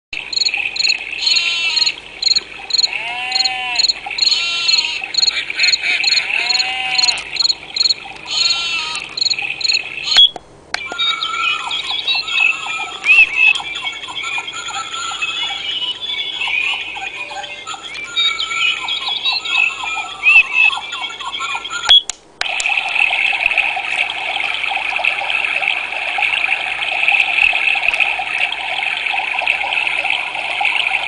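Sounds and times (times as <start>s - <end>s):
birds chirping: 0.2s - 22.0s
frogs croaking: 0.2s - 22.0s, 22.6s - 31.0s
crickets chirping: 0.3s - 9.8s.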